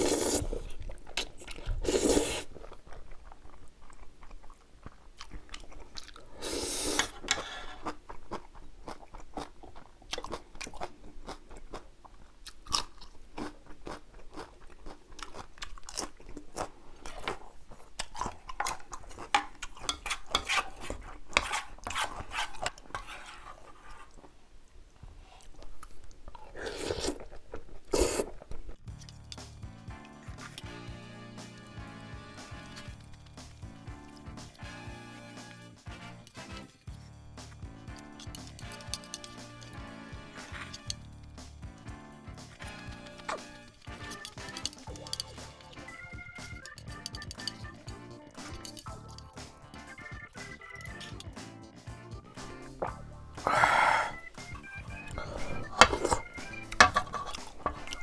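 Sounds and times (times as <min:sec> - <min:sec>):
noisy slurps: 0:00.0 - 0:24.4, 0:25.1 - 0:46.0, 0:52.4 - 0:58.0
chewing and crunching: 0:00.0 - 0:58.0
wet mouth clicks: 0:25.4 - 0:29.6.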